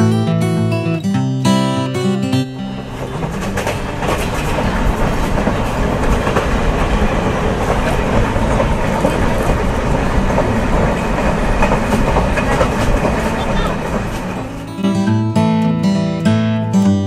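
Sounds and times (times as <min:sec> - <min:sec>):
train rumbling with wheel clatter: 0:02.3 - 0:14.8.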